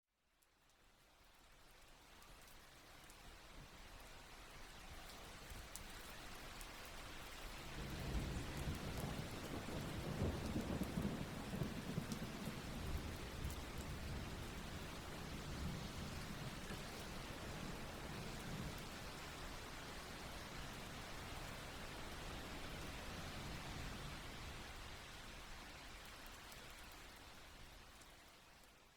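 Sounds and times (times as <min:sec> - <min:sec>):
steady rain: 0:00.1 - 0:28.9
low rumble of thunder: 0:07.6 - 0:24.7.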